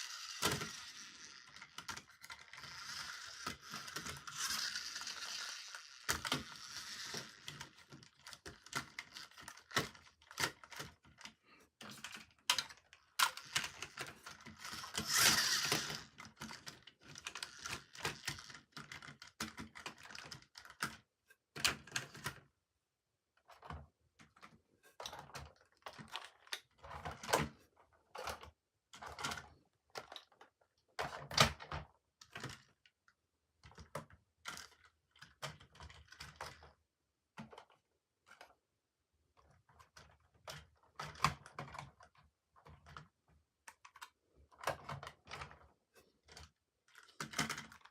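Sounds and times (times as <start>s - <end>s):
toys clicking and knocking: 0.0s - 22.4s, 33.6s - 36.8s, 39.5s - 47.9s.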